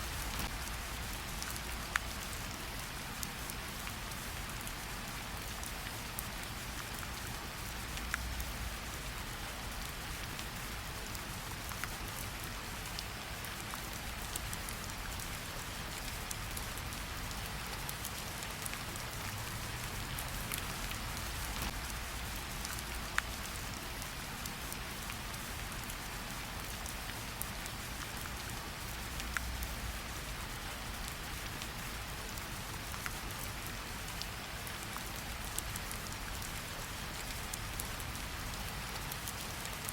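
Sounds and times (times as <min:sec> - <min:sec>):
rain on leaves: 0:00.0 - 0:39.9.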